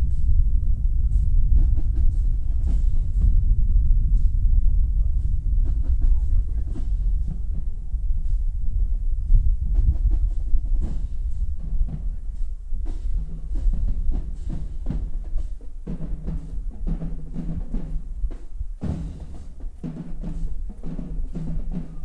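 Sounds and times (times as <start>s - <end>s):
bass drum beats: 0.0s - 22.0s
snare drum strokes: 9.3s - 22.0s.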